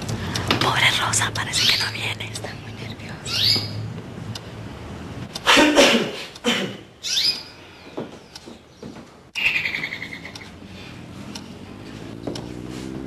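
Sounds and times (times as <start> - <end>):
birds chirping: 1.0 - 3.9, 6.9 - 12.7.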